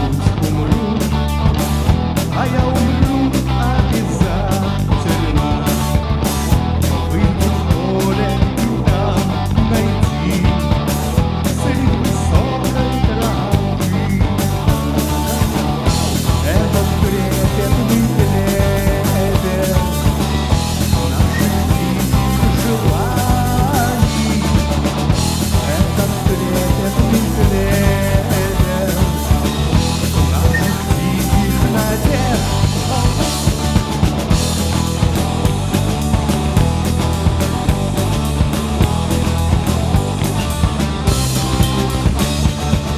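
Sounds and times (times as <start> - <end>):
drum kit beat: 0.0 - 42.9
rock band playing live: 0.0 - 42.9
melodic lead line: 13.6 - 42.6.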